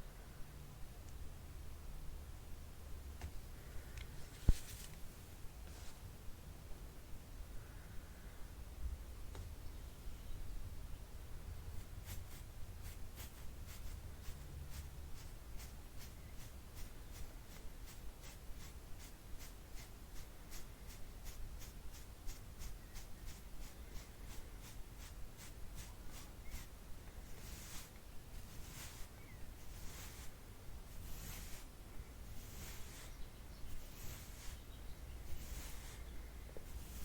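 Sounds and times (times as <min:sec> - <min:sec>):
soft brush strokes: 0:03.7 - 0:06.2, 0:11.7 - 0:37.0.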